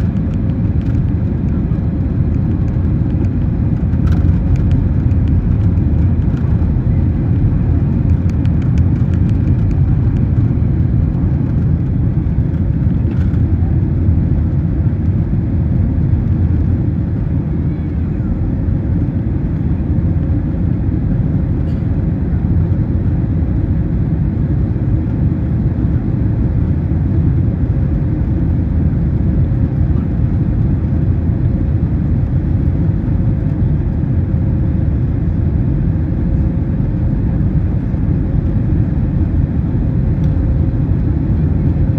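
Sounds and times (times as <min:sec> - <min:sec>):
jet engine rumble inside cabin: 0:00.0 - 0:41.9.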